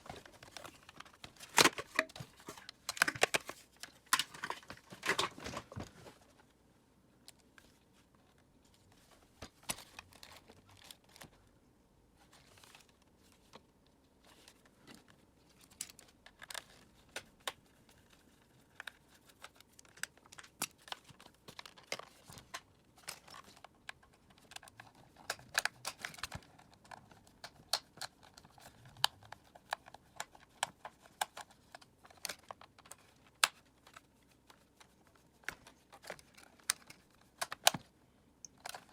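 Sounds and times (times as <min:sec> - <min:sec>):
plastic parts clicking and tapping: 0:00.0 - 0:05.9, 0:18.4 - 0:38.9
crinkly rustles: 0:00.0 - 0:06.6, 0:07.2 - 0:11.5, 0:12.2 - 0:38.9.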